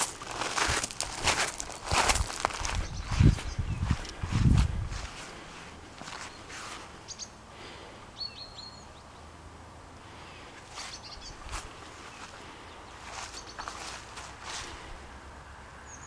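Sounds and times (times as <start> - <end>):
footsteps on grass and gravel: 0.0 - 7.0, 10.6 - 14.9
outdoor background noise: 0.0 - 16.0
high bird chirps: 2.8 - 3.9, 10.8 - 11.4, 13.2 - 13.7.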